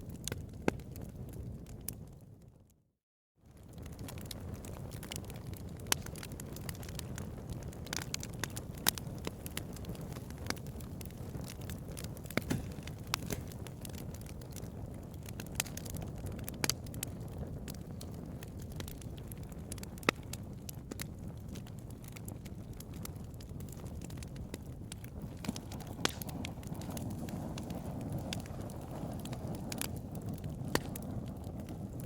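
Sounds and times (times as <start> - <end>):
fire crackles and pops: 0.0 - 2.8, 3.5 - 32.0
low rumble of flames: 0.0 - 2.8, 3.4 - 32.0.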